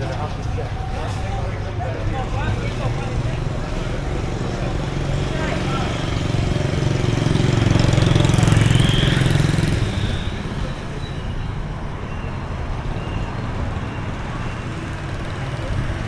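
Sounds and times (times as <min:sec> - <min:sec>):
street traffic: 0:00.0 - 0:16.0
motorbike engine passing: 0:01.9 - 0:11.0.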